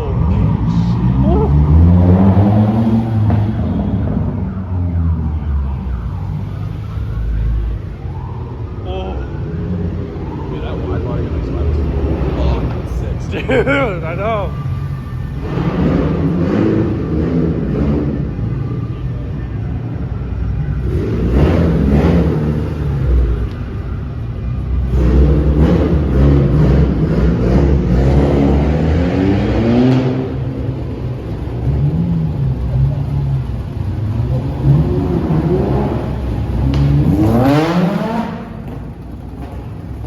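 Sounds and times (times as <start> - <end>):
car engine revving: 0.0 - 4.6, 10.6 - 18.9, 20.7 - 24.0, 24.6 - 40.0.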